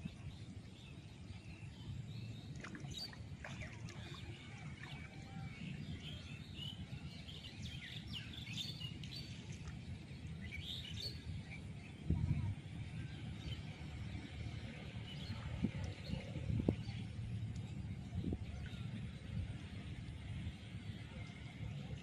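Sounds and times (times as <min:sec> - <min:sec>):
low background rumble: 0:11.1 - 0:22.0.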